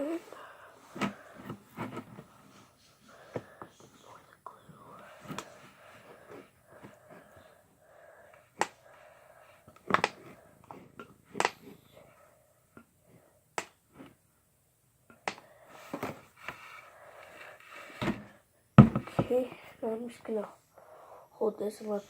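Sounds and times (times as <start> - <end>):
plastic bottle clicks and knocks: 18.0 - 19.4.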